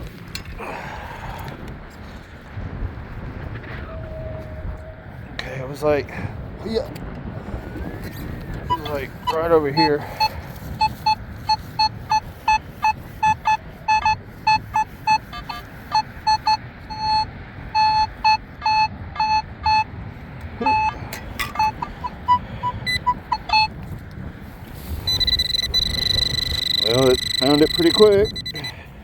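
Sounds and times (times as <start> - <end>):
low wind rumble: 0.0 - 29.0
metal detector beeping: 8.6 - 19.9, 20.6 - 23.8, 24.9 - 28.9.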